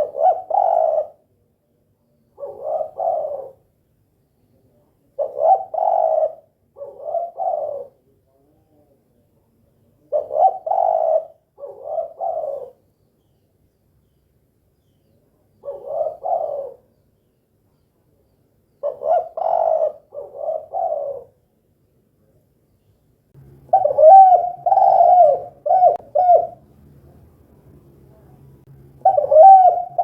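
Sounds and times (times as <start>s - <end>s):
dove cooing: 0.0s - 1.3s, 2.4s - 3.7s, 5.2s - 8.0s, 10.0s - 12.8s, 15.6s - 16.9s, 18.8s - 21.5s, 23.6s - 26.6s, 29.0s - 30.0s.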